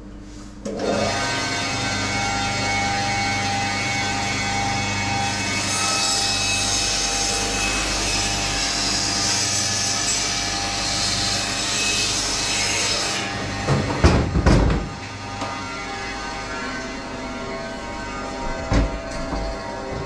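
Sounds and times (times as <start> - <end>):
electric saw cutting frozen meat: 0.7 - 20.0
knocks: 13.7 - 15.0.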